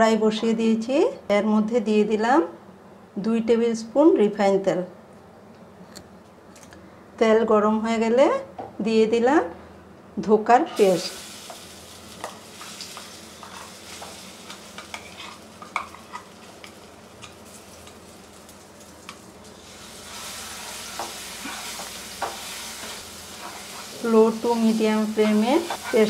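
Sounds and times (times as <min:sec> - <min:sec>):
paste sizzling in hot oil: 0:10.9 - 0:26.0
metal spatula scraping: 0:13.4 - 0:14.2, 0:14.8 - 0:16.3, 0:20.4 - 0:24.1, 0:25.2 - 0:26.0.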